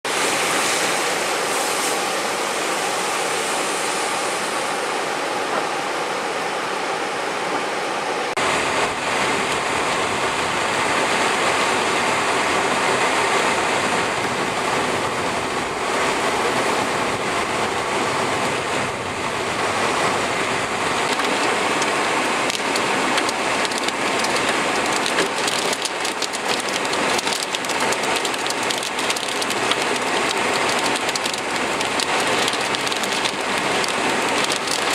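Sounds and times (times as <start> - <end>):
hard rain pouring: 0.0 - 34.9.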